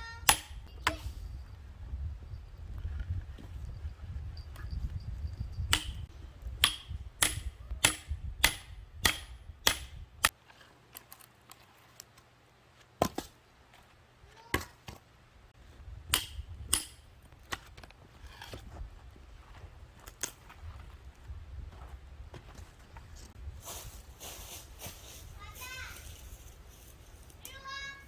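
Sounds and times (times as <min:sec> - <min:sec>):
hatchet knocking into firewood: 0:05.7 - 0:10.4.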